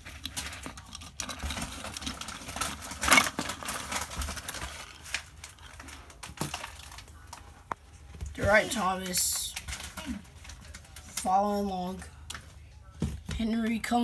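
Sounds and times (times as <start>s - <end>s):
plastic toy trains clicking and rattling: 0.0s - 7.0s.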